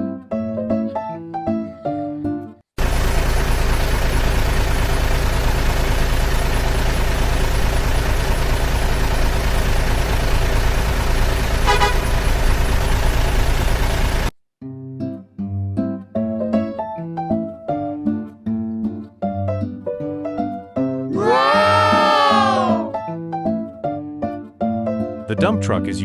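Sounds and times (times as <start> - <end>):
heavy vehicle engine running: 2.8 - 14.4
short horn toot: 11.6 - 12.2.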